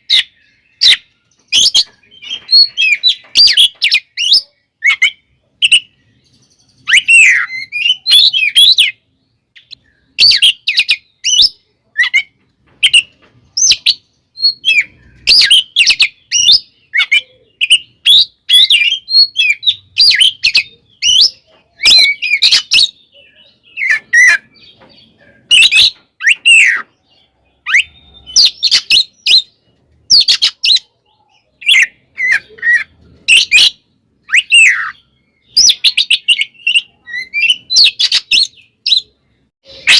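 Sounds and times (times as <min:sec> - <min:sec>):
bird singing sharp whistles: 0:06.8 - 0:09.0, 0:31.6 - 0:39.1.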